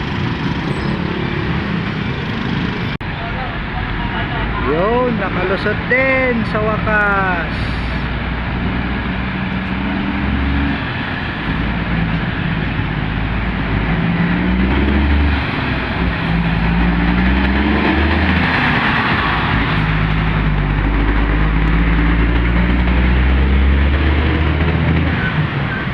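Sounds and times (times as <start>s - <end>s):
heavy vehicle engines: 0.0s - 25.9s
road noise: 0.0s - 25.9s.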